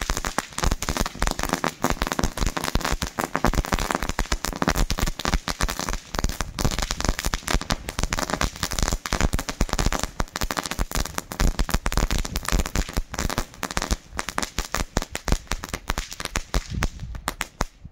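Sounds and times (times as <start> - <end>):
crackling firework: 0.0 - 17.9.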